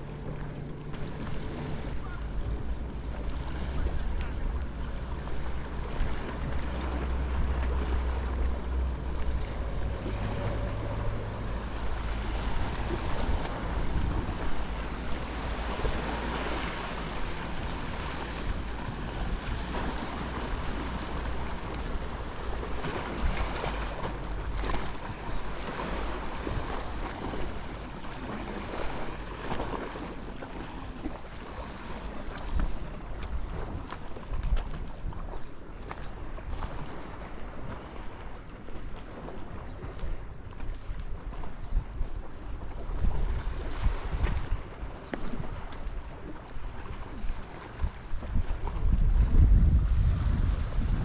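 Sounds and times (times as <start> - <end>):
surf washing onto shore: 0.0 - 34.7
wind buffeting microphone: 0.0 - 51.0.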